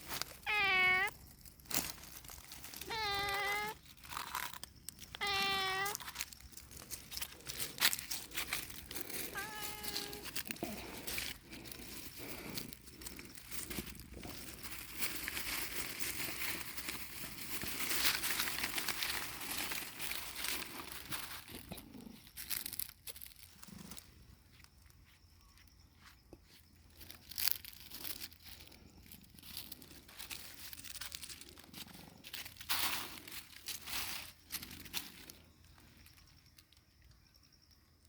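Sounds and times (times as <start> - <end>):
paper or plastic crinkling: 0.0 - 21.8, 27.0 - 35.4.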